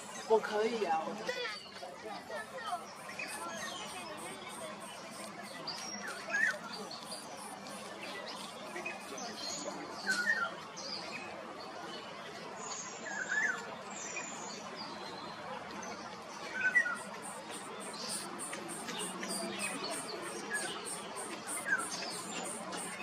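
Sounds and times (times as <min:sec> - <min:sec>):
bird chirping: 0:02.7 - 0:09.7, 0:16.7 - 0:23.0
faint high chirps: 0:02.8 - 0:09.4, 0:16.8 - 0:23.0
steady background hiss: 0:16.8 - 0:23.0.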